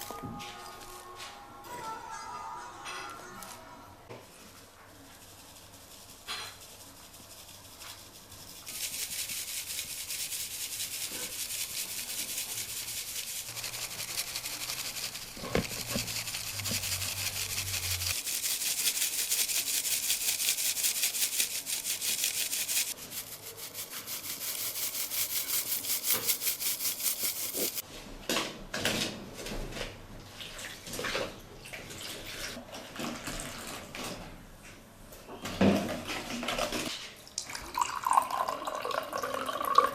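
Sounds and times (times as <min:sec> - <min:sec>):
rhythmic scraping hiss: 0:00.0 - 0:27.8.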